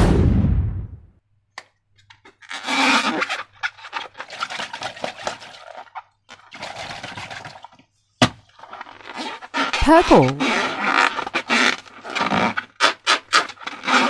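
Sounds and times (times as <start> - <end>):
slime squelching: 8.6 - 10.6.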